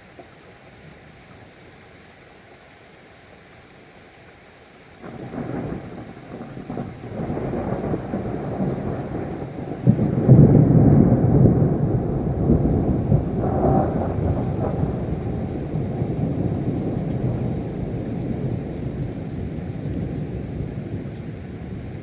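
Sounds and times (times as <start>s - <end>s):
rain hiss: 0.0s - 22.0s
thunder rumbling: 5.0s - 22.0s.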